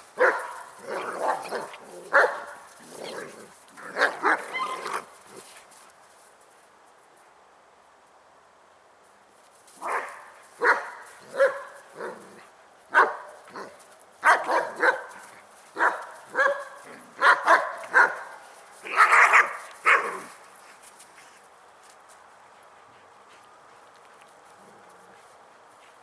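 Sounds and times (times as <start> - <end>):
dogs barking: 0.2 - 2.7, 9.8 - 12.2, 12.9 - 20.3.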